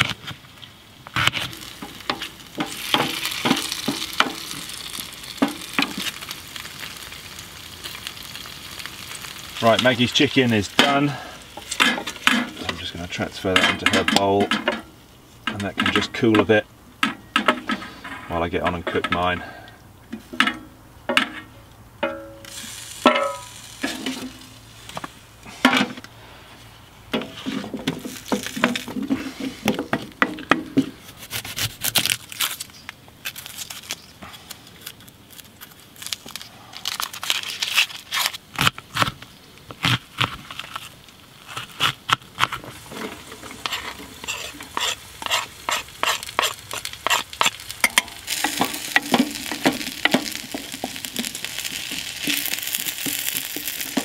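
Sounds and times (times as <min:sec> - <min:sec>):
vegetables sizzling in a pan: 0:00.9 - 0:13.4, 0:22.3 - 0:25.3, 0:42.7 - 0:54.0.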